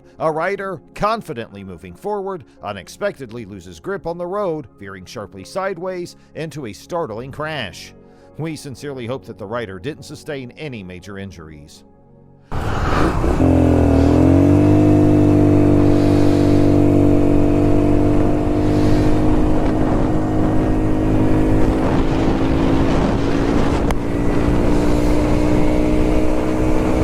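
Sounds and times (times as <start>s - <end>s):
vehicle engine at high revs: 12.5s - 27.0s
wind and road noise: 12.5s - 27.0s.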